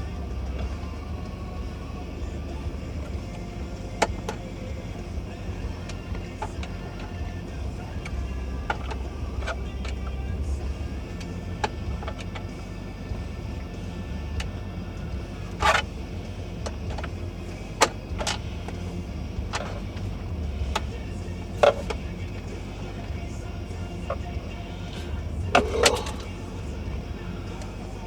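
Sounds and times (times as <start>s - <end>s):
low steady rumble: 0.0s - 28.0s.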